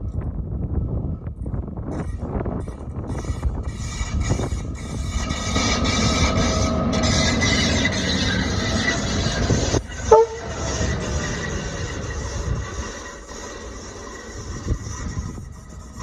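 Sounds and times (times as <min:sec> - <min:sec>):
locomotive engine running: 0:03.0 - 0:16.0
locomotive horn toot: 0:10.0 - 0:11.1.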